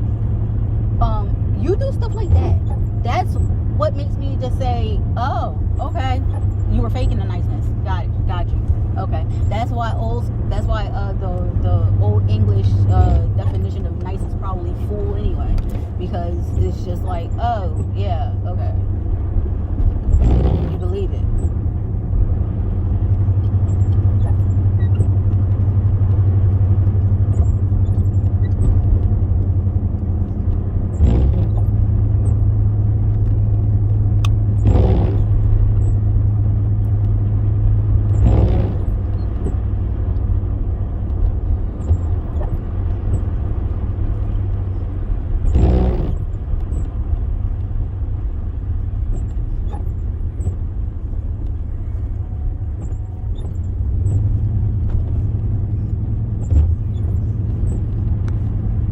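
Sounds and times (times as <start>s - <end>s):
car driving rumble: 0.0s - 58.9s
short thumps: 27.0s - 36.0s, 49.0s - 58.9s.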